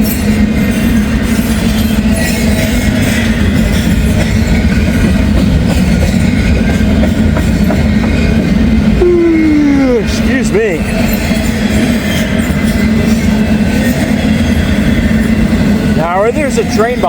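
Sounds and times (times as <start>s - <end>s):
wheels clattering on rails: 0.0s - 9.0s, 10.1s - 17.0s
freight train rolling past: 0.0s - 17.0s.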